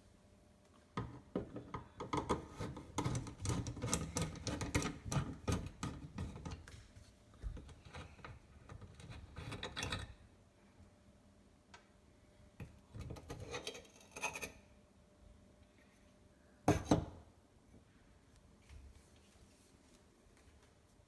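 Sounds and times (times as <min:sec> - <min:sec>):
sink drain fittings rattling: 0:01.4 - 0:06.6.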